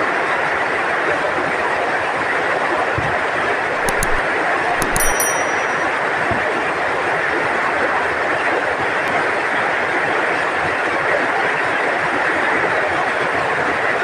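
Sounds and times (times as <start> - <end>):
short clinks: 3.8 - 4.2, 4.8 - 6.1.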